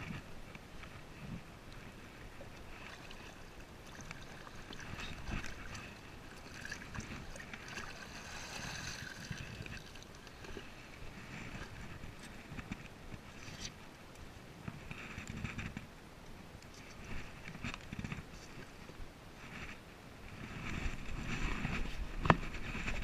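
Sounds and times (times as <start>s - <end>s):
water lapping against hull: 0.0s - 13.8s.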